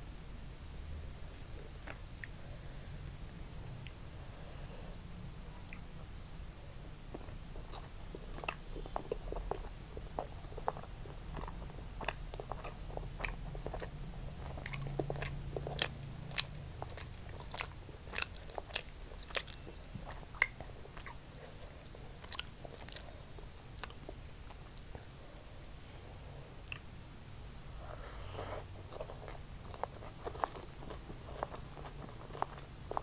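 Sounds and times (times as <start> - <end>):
person chewing: 7.1 - 25.2, 26.6 - 26.9, 28.0 - 33.0.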